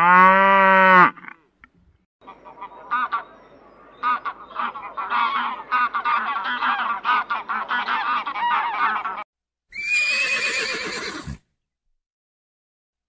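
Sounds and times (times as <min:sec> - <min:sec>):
geese honking: 0:02.2 - 0:09.2
horse whinnying: 0:09.7 - 0:11.4.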